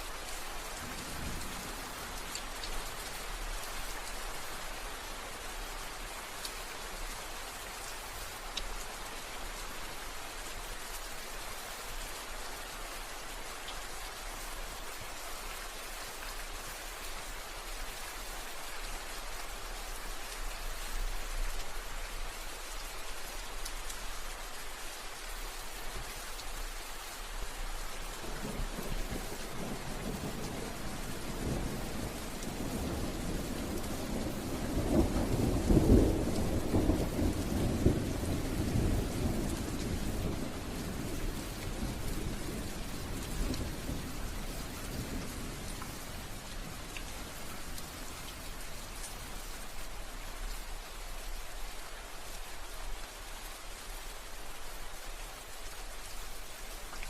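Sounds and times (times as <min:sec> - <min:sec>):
steady rain falling: 0:00.0 - 0:57.0
low rumble of thunder: 0:00.7 - 0:02.2, 0:28.2 - 0:49.0.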